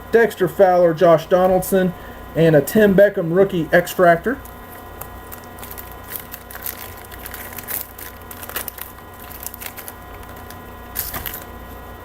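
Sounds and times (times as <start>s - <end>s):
low electrical hum: 0.0s - 12.0s
cards rustling: 3.5s - 11.9s
foil wrapper crinkling: 3.5s - 11.9s.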